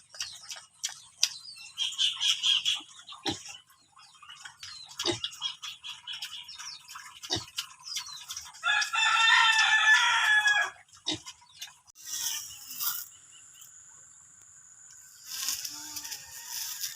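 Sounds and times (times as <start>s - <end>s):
small birds chirping: 0.0s - 8.9s, 10.8s - 16.0s
rooster crowing: 8.6s - 10.8s, 16.0s - 16.9s.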